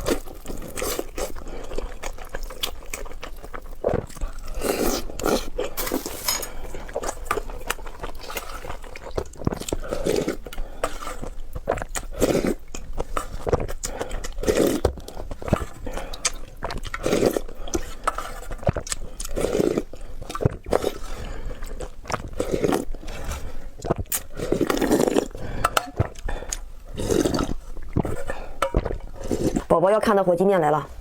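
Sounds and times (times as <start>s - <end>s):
person chewing food: 0.0s - 29.7s.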